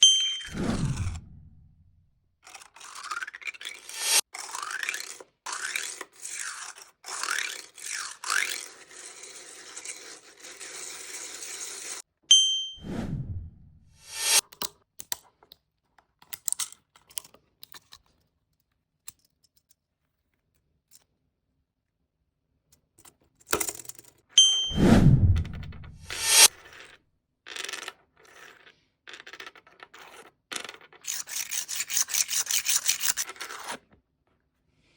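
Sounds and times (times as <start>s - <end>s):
rubbing and scraping strokes: 0.5s - 1.7s, 2.5s - 12.0s, 12.8s - 14.4s, 24.7s - 26.7s, 31.0s - 33.9s.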